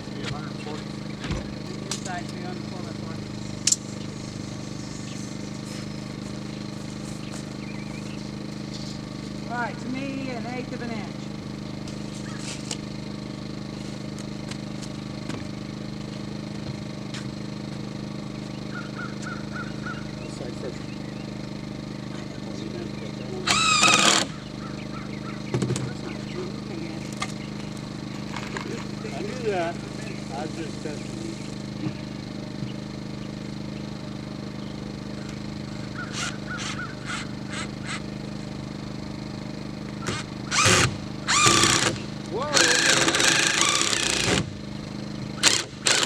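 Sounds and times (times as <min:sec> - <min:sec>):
small engine running: 0:00.0 - 0:46.0
bird honking calls: 0:18.5 - 0:21.4, 0:22.0 - 0:27.8, 0:31.0 - 0:38.3.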